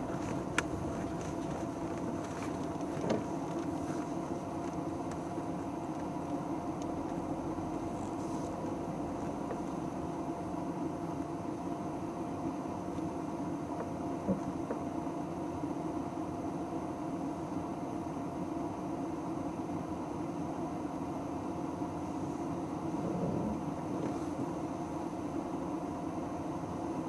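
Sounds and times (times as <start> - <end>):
mechanical hum with faint whine: 0.0 - 27.0.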